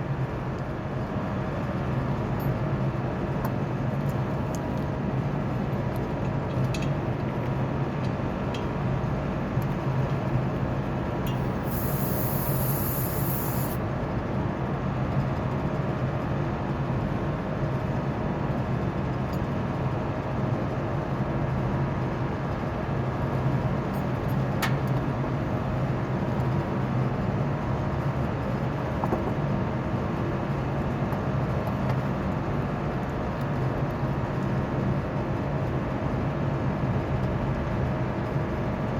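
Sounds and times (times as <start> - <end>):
hvac units droning: 0.0 - 15.0
burst of high hiss: 11.5 - 13.8.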